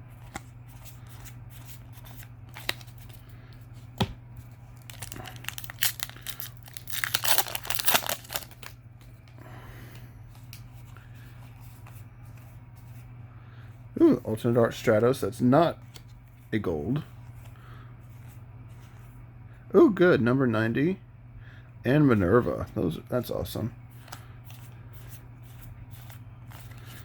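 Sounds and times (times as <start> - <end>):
foil wrapper tearing and crinkling: 4.8 - 8.8.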